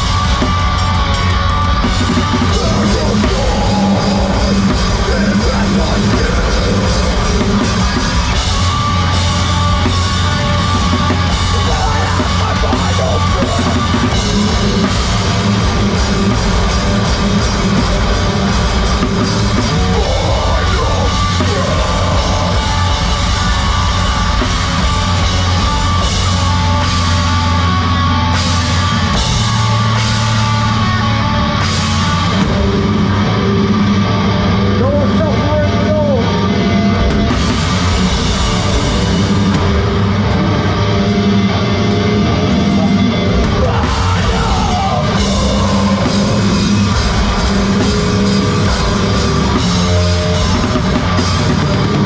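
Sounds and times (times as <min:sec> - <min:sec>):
heavy rock band playing live: 0:00.0 - 0:52.0
person yelling vocals: 0:11.5 - 0:14.0, 0:19.7 - 0:22.9, 0:43.5 - 0:46.5.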